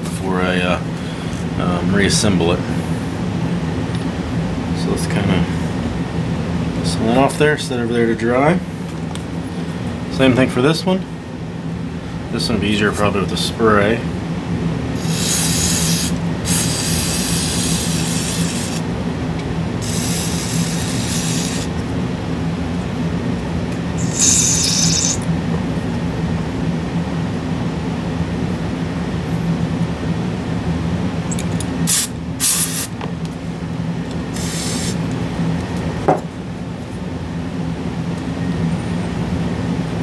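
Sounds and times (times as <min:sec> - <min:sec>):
steady low hum: 0:00.0 - 0:40.0
aerosol spray hissing: 0:15.0 - 0:18.9, 0:19.8 - 0:21.8, 0:24.0 - 0:25.2, 0:31.9 - 0:32.9, 0:34.4 - 0:35.0.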